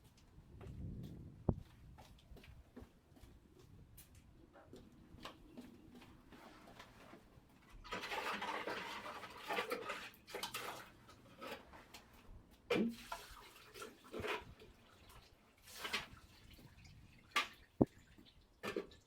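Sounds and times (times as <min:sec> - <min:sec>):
short splashes and drips: 0:12.7 - 0:19.0
water pouring and splashing: 0:12.7 - 0:19.0.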